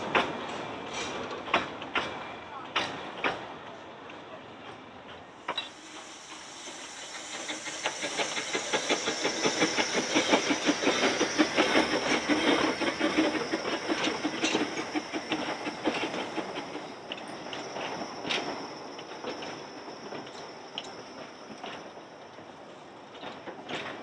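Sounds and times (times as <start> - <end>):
train wheels clicking on rails: 0.0 - 24.0
steady high hiss: 5.5 - 11.1.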